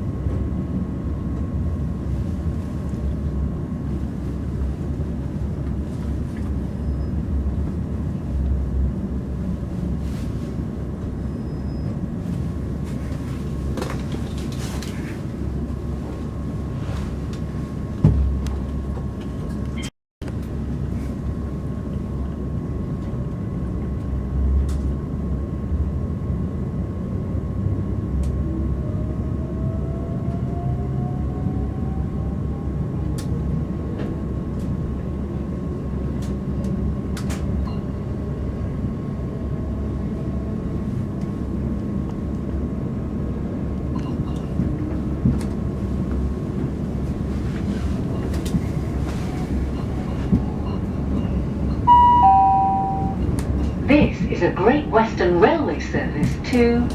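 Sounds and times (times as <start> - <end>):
train wheels rumbling on rail: 0.0 - 56.9
rising whine: 51.9 - 53.2.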